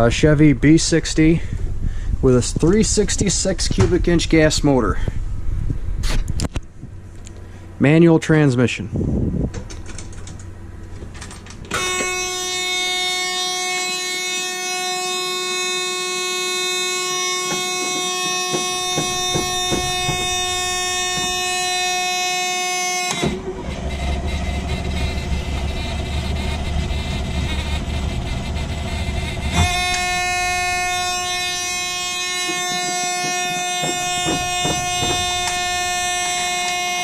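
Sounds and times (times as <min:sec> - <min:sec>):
electric warning buzzer: 0:11.7 - 0:37.0
starter cranking engine: 0:23.1 - 0:36.4.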